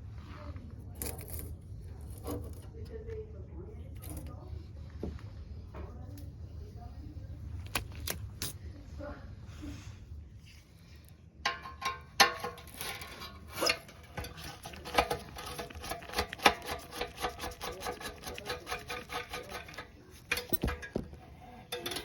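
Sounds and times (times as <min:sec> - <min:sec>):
quick clicks and scrapes of tools: 0:12.2 - 0:21.0.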